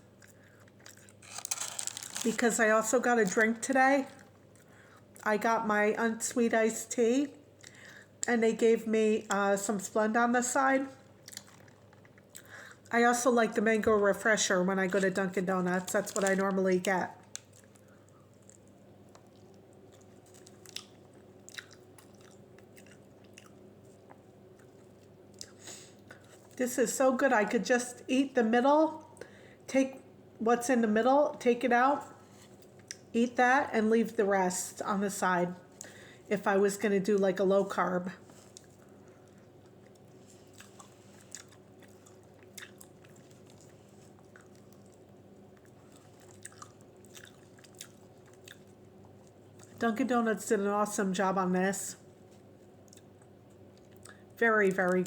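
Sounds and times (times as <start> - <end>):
woman chewing food: 0.0 - 2.3, 11.0 - 12.9, 17.2 - 26.6, 38.3 - 49.8, 52.2 - 54.4
faint steady hum: 0.0 - 55.0.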